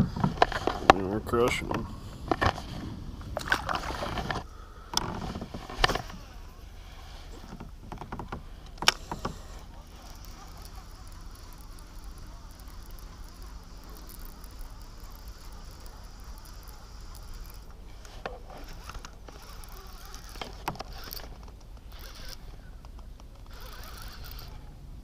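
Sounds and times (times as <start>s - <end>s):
fishing reel whirring: 3.4s - 22.8s, 23.4s - 24.8s
sharp clicks: 10.0s - 24.6s.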